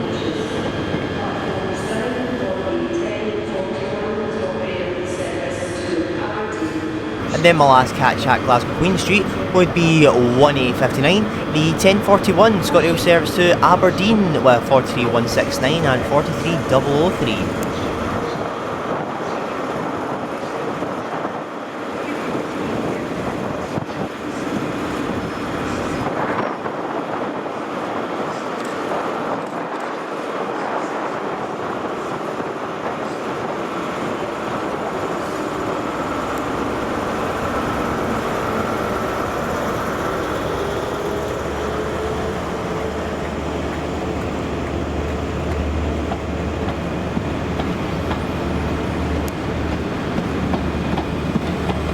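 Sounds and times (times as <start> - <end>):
train diesel engines running: 6.6 - 18.8, 33.3 - 51.9.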